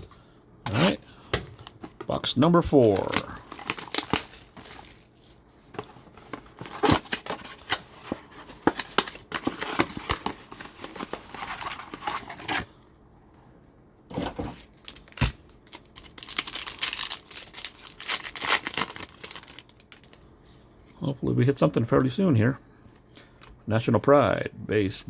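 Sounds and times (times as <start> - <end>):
wrapping torn and crinkled: 2.8 - 5.5, 14.6 - 20.3.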